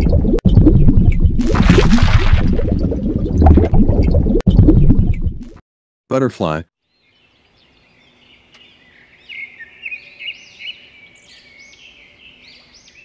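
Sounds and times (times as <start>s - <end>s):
small birds chirping: 6.8s - 13.0s.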